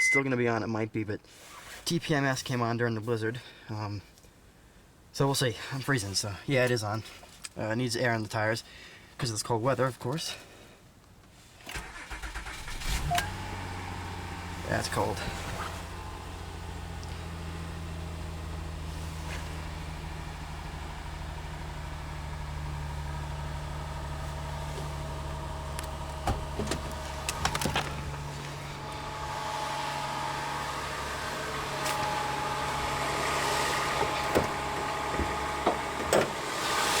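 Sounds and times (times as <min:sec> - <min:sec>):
car engine idling: 0:11.9 - 0:37.0.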